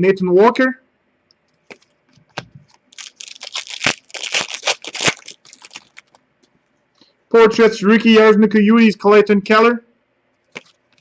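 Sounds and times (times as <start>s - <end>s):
cards rustling and flicking: 10.5s - 11.0s.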